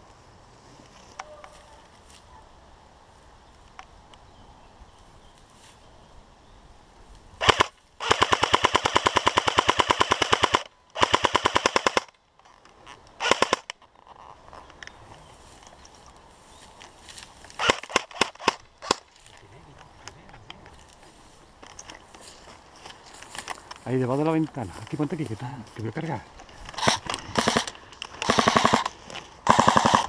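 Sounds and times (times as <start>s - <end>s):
airsoft gun firing bursts: 7.4s - 12.1s, 13.2s - 13.7s, 17.6s - 19.0s, 26.8s - 30.0s.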